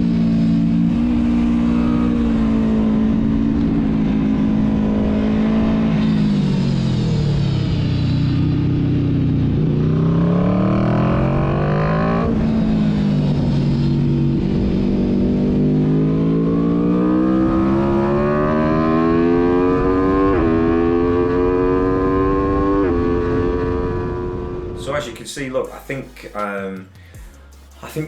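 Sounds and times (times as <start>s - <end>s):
motorcycle engine revving: 0.0s - 25.1s
wind rush: 11.5s - 15.5s.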